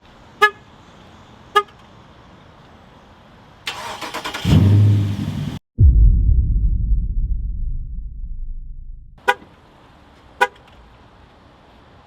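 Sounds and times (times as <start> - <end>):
engine starter cranking: 3.7 - 5.2
car engine deep rumble: 4.4 - 9.2.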